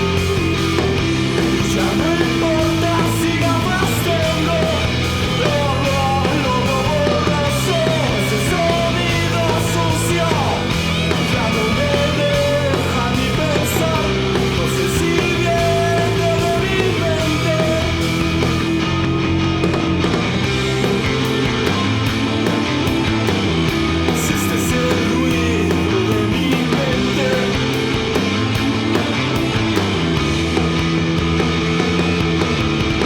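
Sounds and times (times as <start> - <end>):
rock song with electric guitar: 0.0 - 33.0.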